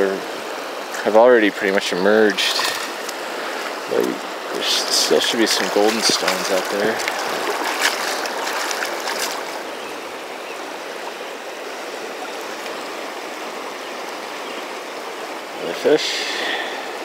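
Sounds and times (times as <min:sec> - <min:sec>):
river current rushing: 0:00.0 - 0:17.0.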